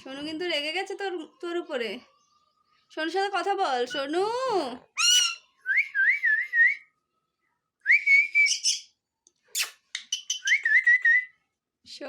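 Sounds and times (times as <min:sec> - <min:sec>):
parakeet whistling: 0:05.0 - 0:06.4, 0:08.1 - 0:08.8, 0:09.6 - 0:11.3.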